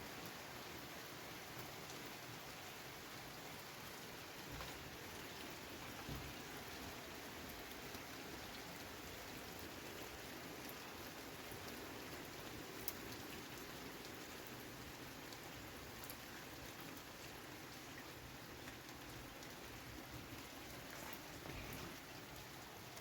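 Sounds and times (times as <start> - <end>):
steady rain falling: 0.0 - 23.0
raindrop ticks: 12.7 - 14.2.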